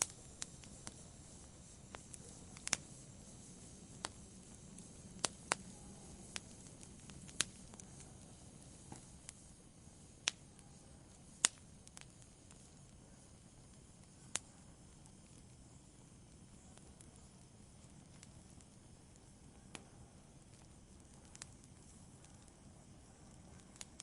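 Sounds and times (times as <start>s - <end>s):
burning wood crackling and popping: 0.0s - 24.0s
flames hissing: 0.0s - 24.0s.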